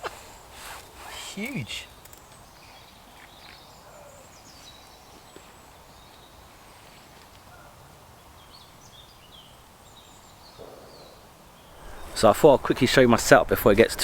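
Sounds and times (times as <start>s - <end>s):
quiet woodland ambience: 0.0s - 14.0s
faint high bird chirps: 7.4s - 12.2s.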